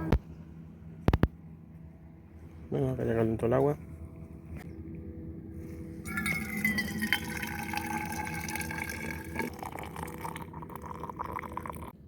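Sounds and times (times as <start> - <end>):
hot water poured from kettle: 6.1 - 12.0.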